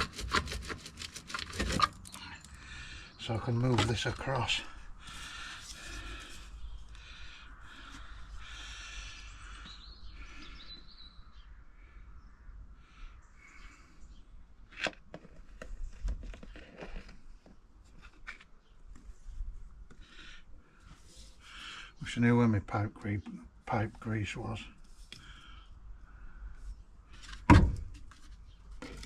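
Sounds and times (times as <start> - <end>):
plastic pipe scraping: 0.0 - 2.2, 3.4 - 6.5, 14.8 - 18.4.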